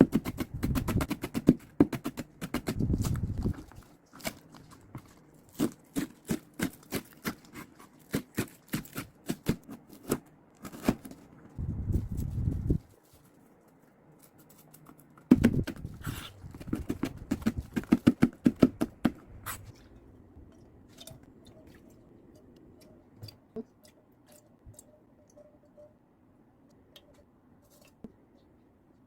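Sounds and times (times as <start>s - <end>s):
crackly dried seaweed handling: 2.6s - 21.9s.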